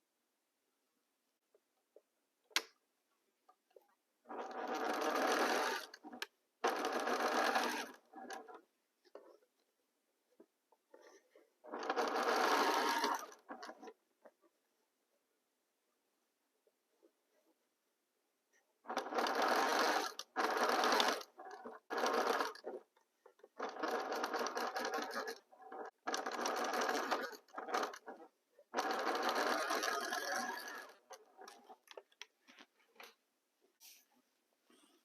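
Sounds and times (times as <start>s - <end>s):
sewing machine stitching: 4.2s - 9.4s, 10.9s - 14.0s, 18.8s - 32.2s.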